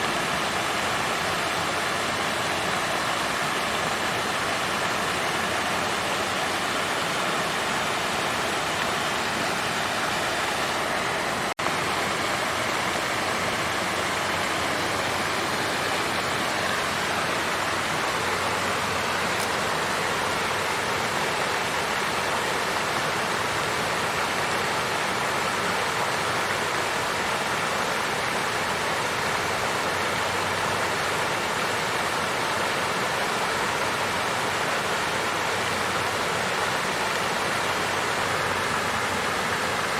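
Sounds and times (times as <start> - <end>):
water fountain splashing: 0.0 - 39.9.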